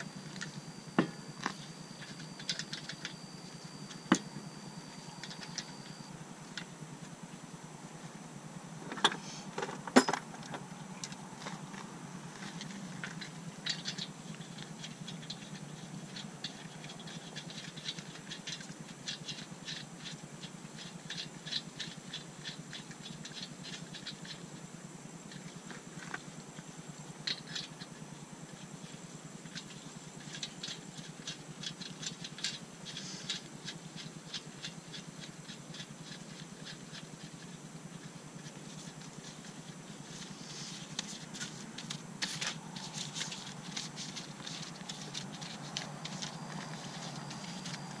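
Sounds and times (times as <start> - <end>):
lug nuts clicking and rattling: 8.9 - 24.5, 25.3 - 48.0.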